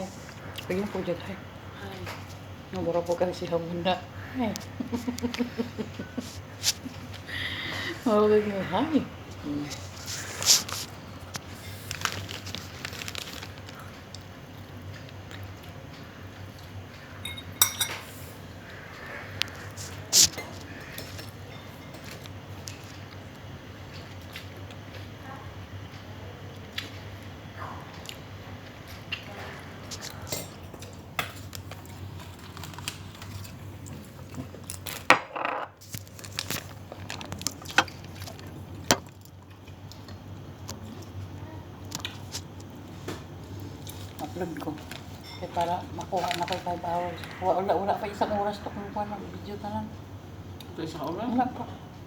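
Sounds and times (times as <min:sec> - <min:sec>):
cutlery and dishes clinking: 0:17.2 - 0:18.2, 0:45.2 - 0:45.7.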